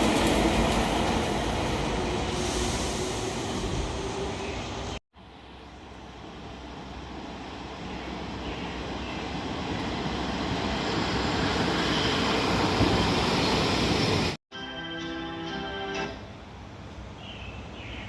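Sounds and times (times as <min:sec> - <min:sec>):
train approaching: 0:00.0 - 0:17.2.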